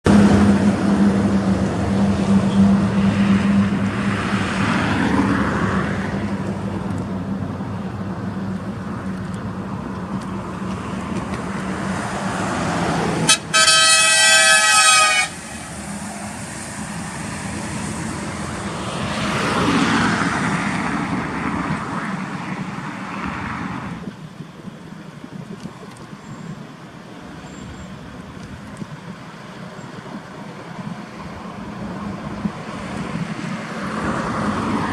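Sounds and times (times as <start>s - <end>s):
heavy trucks driving past: 0.1s - 24.1s, 26.9s - 34.9s
truck air horn blast: 13.2s - 16.1s.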